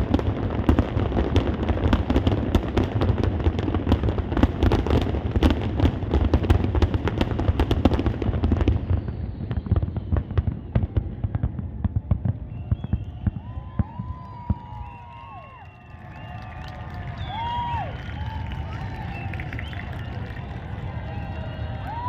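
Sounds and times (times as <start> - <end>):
fireworks cracks and bangs: 0.0 - 22.0.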